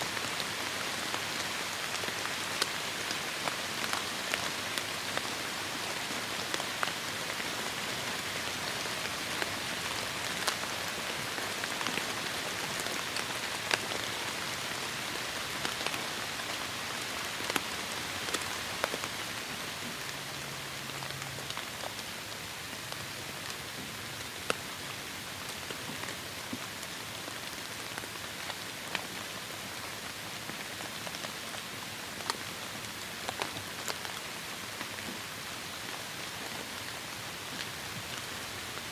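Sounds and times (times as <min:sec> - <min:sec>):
raindrops ticking on a surface: 0:00.1 - 0:38.9.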